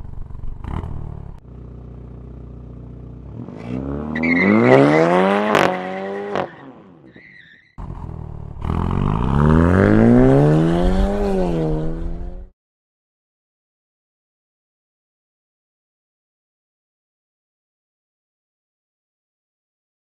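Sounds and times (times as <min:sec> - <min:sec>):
car engine accelerating hard: 0:03.2 - 0:06.5, 0:07.8 - 0:12.5.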